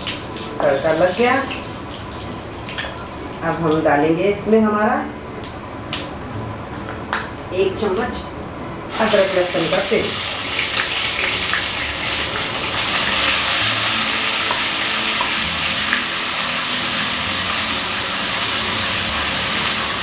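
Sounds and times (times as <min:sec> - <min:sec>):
paste sizzling in hot oil: 0:08.9 - 0:20.0.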